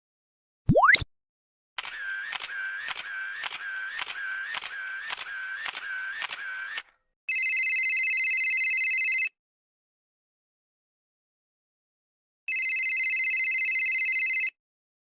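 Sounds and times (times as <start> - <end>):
electronic ringing tone: 7.3 - 9.3, 12.5 - 14.6.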